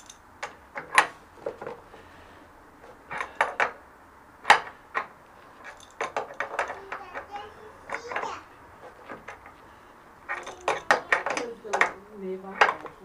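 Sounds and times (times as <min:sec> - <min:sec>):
metal tools clinking: 0:00.0 - 0:01.8, 0:03.0 - 0:03.8, 0:04.5 - 0:07.3, 0:10.3 - 0:13.0.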